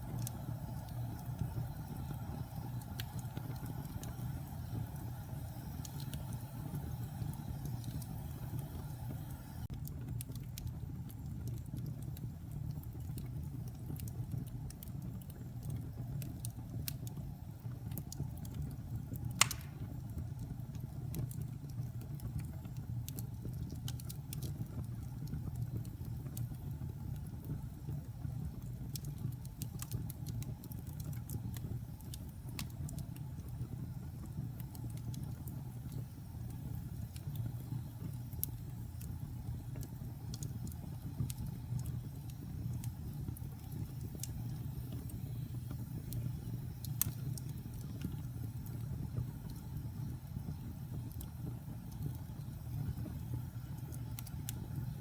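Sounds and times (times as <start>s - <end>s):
wood fire crackling: 0.0s - 55.0s
loud pop of fire: 19.4s - 20.1s.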